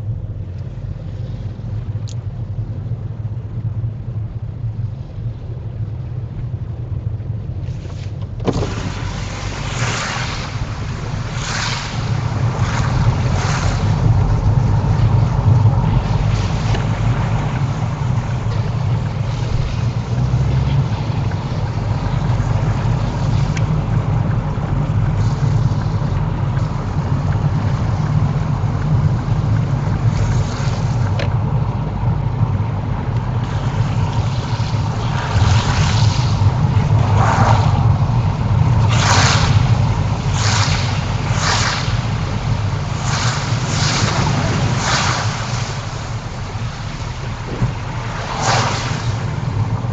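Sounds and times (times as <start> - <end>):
low rumble of traffic: 0.0 - 49.9
tyres splashing through floodwater: 0.6 - 49.9
wind on microphone: 7.5 - 49.9.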